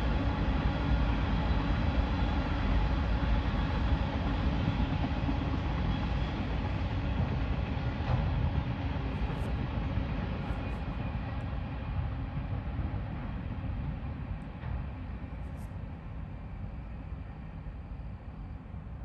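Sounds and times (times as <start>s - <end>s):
freight train wheels rumbling on rails: 0.0s - 17.8s.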